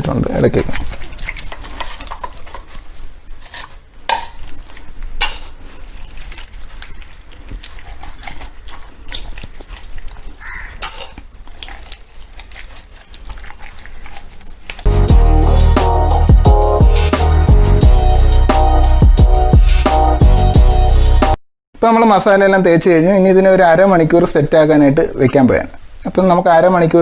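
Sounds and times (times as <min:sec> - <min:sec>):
hands squelching wet paste: 0:00.0 - 0:15.2.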